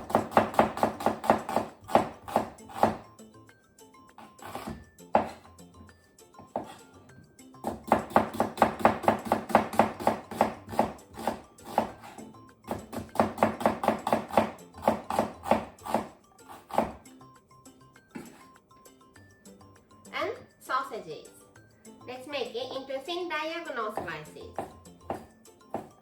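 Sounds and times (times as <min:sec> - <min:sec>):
knife slicing onion on board: 0:00.0 - 0:03.1, 0:04.2 - 0:05.5, 0:06.4 - 0:07.0, 0:07.6 - 0:17.1, 0:18.2 - 0:18.6, 0:24.0 - 0:26.0
background music: 0:00.0 - 0:26.0.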